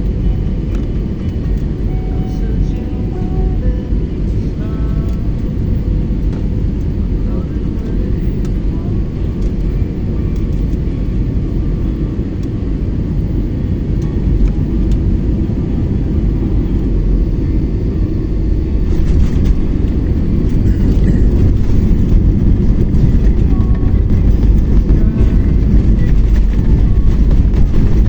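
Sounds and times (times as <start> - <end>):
airliner cabin rumble: 0.0 - 28.0
light clatter: 18.0 - 28.0.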